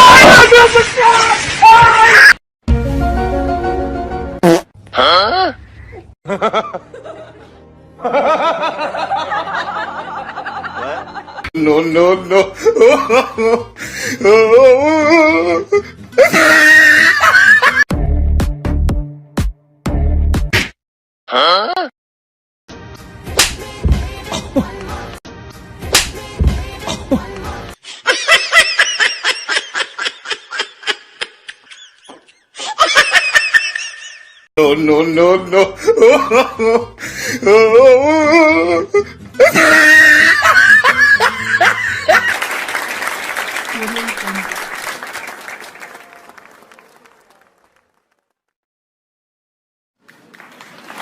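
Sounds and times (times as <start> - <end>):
music: 2.7 - 4.5, 6.4 - 14.2, 14.8 - 16.5, 17.8 - 20.7, 22.7 - 27.8, 35.2 - 43.2
crowd applause: 42.1 - 48.2, 50.0 - 51.0.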